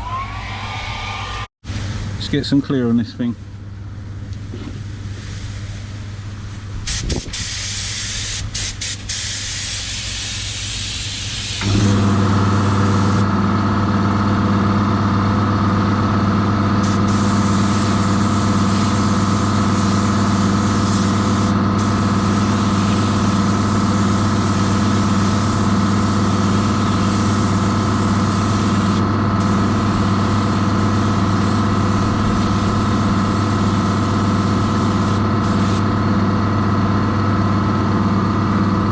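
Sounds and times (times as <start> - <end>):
spray gun hissing: 6.9 - 13.2, 16.8 - 35.8
air compressor motor humming: 6.9 - 37.9.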